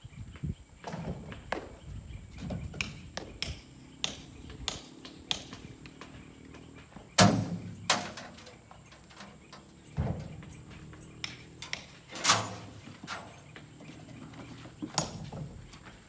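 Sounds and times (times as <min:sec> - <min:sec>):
sharp knocks and taps: 0:02.7 - 0:06.2.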